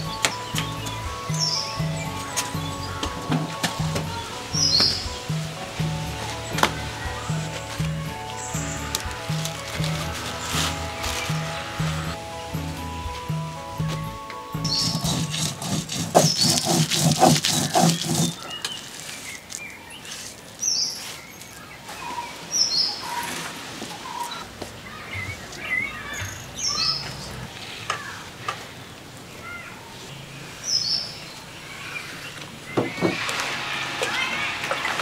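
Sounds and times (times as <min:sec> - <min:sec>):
birds chirping: 0:00.0 - 0:33.3
loud rhythmic sound: 0:14.6 - 0:18.4.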